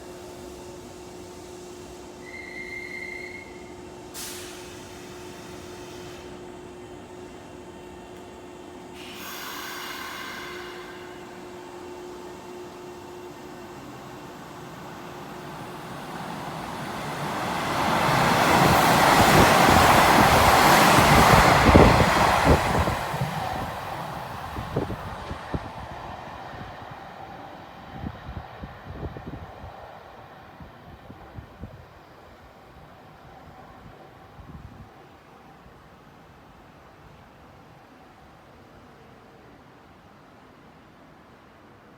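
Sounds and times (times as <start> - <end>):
electric train rushing past: 0.0 - 32.8
sudden hiss: 9.0 - 11.6.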